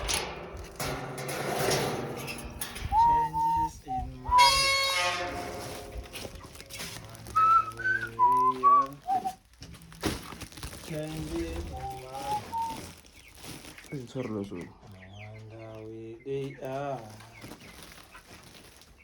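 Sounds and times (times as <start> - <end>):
whistled melody: 2.8 - 4.9, 7.3 - 9.4, 11.6 - 12.8.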